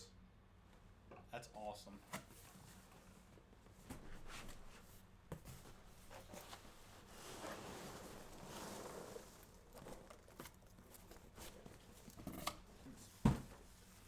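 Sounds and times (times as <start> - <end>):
packing peanuts rustling in a box: 6.2 - 12.3.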